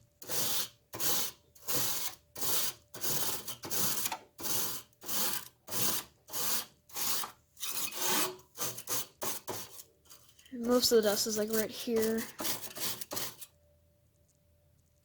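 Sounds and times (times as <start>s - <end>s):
brush scrubbing metal fins: 5.8s - 13.5s.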